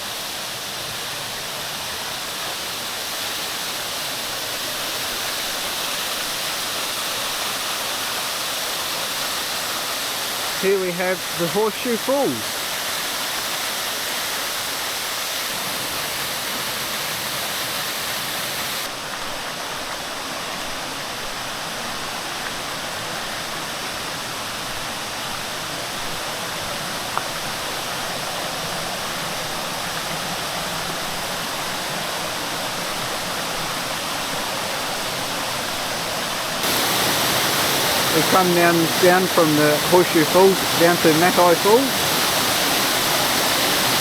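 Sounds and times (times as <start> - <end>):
waterfall pouring: 2.2 - 18.8, 34.3 - 44.0.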